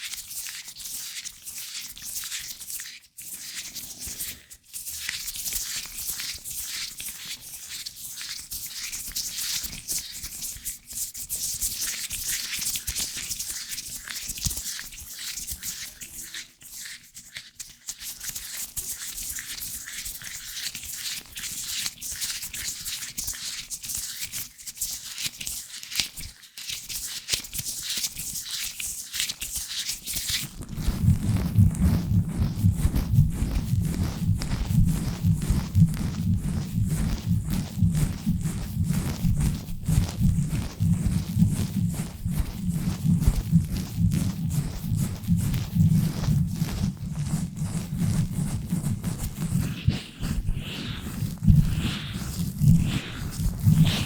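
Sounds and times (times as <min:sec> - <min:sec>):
gloved hands rubbing microphone: 0:30.2 - 0:54.0.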